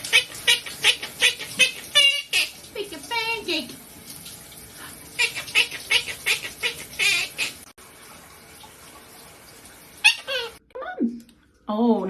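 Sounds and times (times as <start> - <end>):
parrot squawking: 0.0 - 2.6, 5.2 - 7.7, 10.0 - 10.6.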